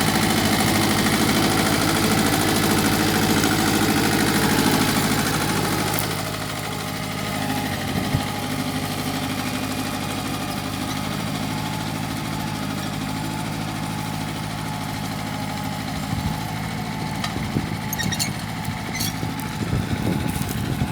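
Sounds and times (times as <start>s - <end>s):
tractor engine running: 0.0s - 20.9s.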